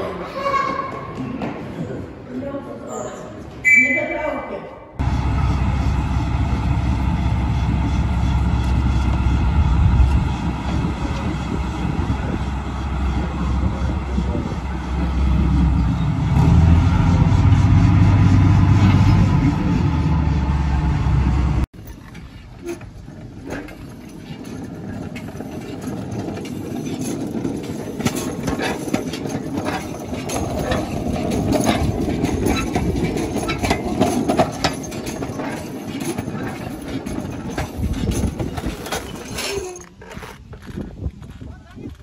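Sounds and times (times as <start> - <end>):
steady low drone: 5.0 - 22.0
train wheels clicking over rail joints: 5.0 - 42.0.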